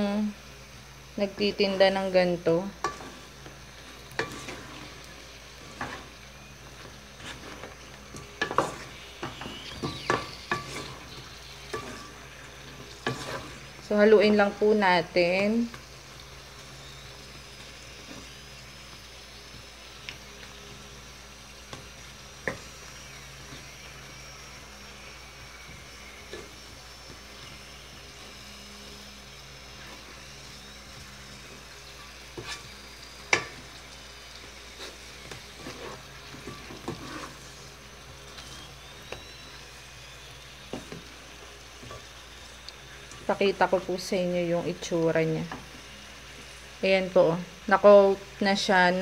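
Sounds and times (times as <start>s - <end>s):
food sizzling in a wok: 0.0s - 49.0s
wooden spatula scraping a pan: 2.8s - 14.8s, 29.6s - 33.8s, 34.4s - 39.6s, 40.6s - 42.2s.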